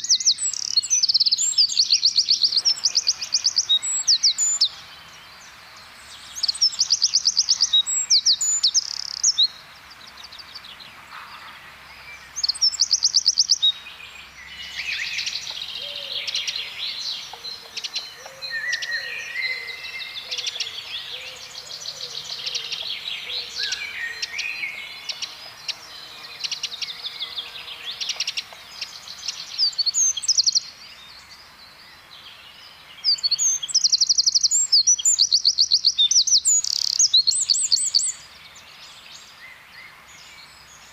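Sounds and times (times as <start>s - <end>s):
bird singing high trills: 0.0s - 4.8s.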